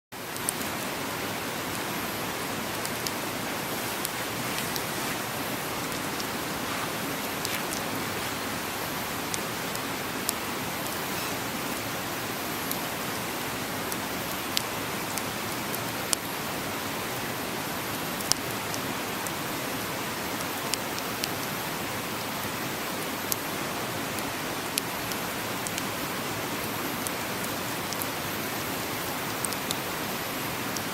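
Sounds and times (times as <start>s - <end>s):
campfire popping: 2.6s - 11.0s.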